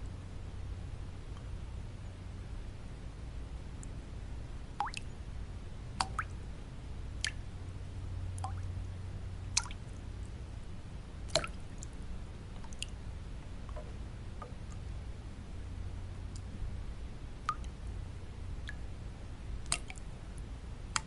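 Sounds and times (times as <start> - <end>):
low white noise: 0.0 - 21.0
water drops plinking: 4.8 - 5.1.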